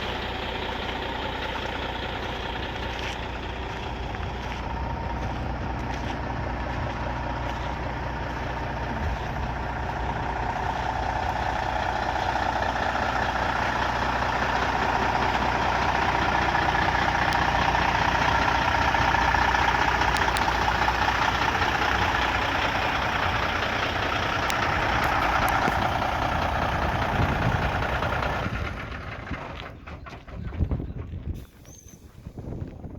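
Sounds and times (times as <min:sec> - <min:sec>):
truck diesel engine idling: 0:00.0 - 0:32.6
wind noise on microphone: 0:24.8 - 0:32.9.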